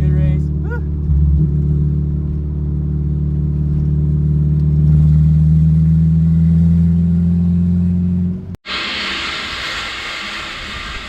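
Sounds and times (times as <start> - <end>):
car engine running: 0.0 - 8.6.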